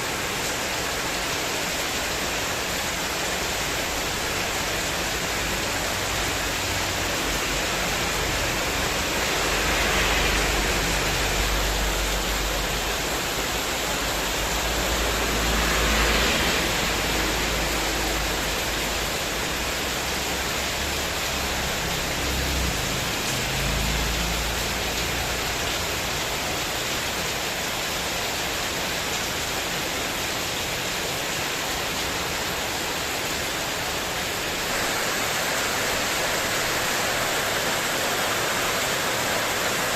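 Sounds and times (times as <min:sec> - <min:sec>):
heavy rain on metal roof: 0:00.0 - 0:39.9.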